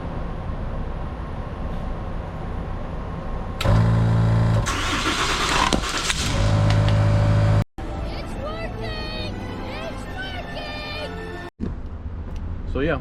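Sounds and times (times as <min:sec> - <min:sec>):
ambulance engine starting: 0:03.6 - 0:07.6
loud hum of engine cranking: 0:03.6 - 0:07.6.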